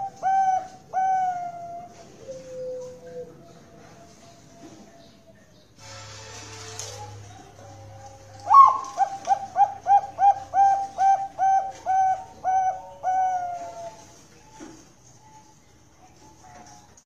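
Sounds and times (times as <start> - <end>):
dove cooing song: 0.0 - 5.6, 7.1 - 14.7.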